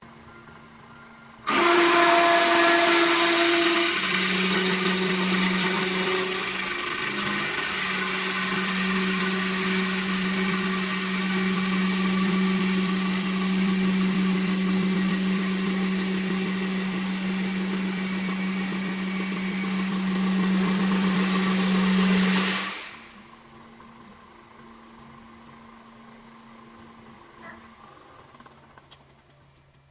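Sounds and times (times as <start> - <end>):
lathe motor hum: 0.8 - 28.6
rough wood cutting noise: 1.5 - 23.2.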